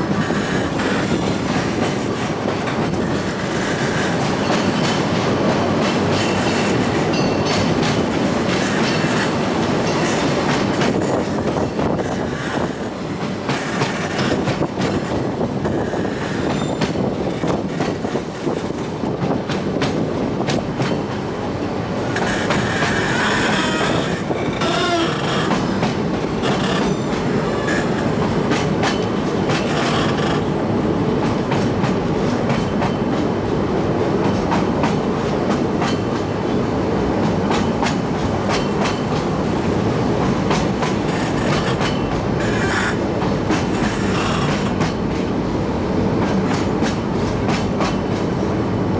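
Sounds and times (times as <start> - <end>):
wheels clicking on rail joints: 0.0 - 21.3, 22.1 - 30.6, 34.2 - 45.4, 46.1 - 48.4
train wheels rumbling on rail: 0.0 - 48.9
wheel squeal: 22.3 - 25.8.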